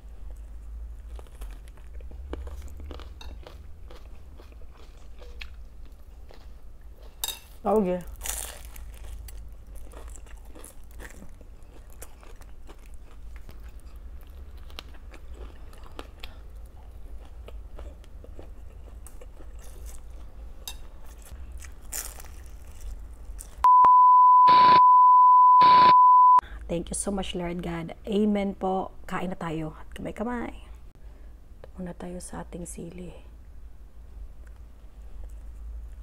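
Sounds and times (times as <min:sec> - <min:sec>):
chewing and crunching food: 0:00.2 - 0:23.7
censor beep tone: 0:23.7 - 0:26.4.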